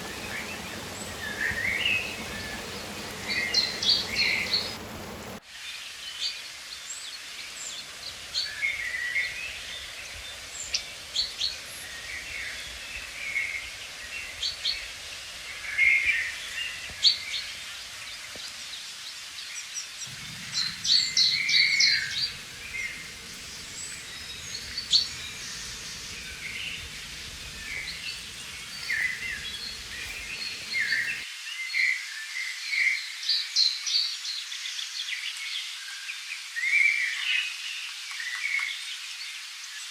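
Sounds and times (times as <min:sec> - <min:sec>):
flowing river: 0:00.0 - 0:05.4, 0:20.1 - 0:31.3
songbirds chirping and singing: 0:00.0 - 0:05.4, 0:20.1 - 0:31.2.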